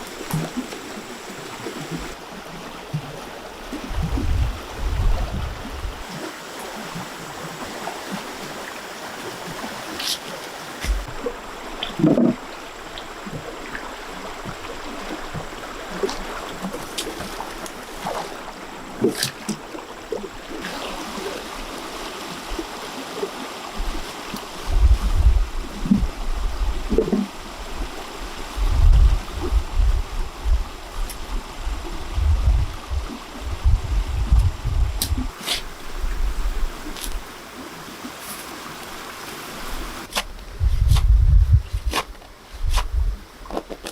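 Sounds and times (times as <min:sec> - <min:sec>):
running water: 0:00.0 - 0:43.9
low thuds: 0:10.8 - 0:11.2.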